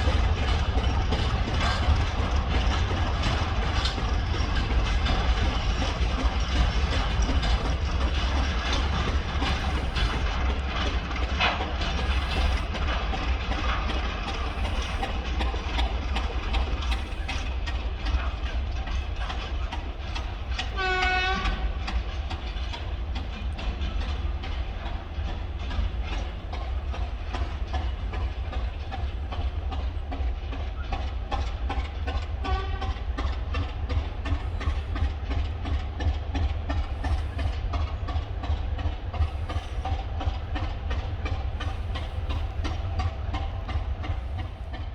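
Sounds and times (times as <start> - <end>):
freight train rumbling past: 0.0 - 44.9
wheels clicking over rail joints: 0.0 - 44.9
locomotive horn toot: 20.8 - 21.8, 32.4 - 33.0.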